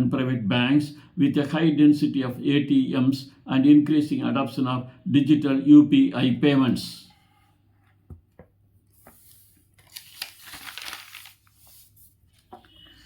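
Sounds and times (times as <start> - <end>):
faint crackling rustling: 9.0 - 12.5.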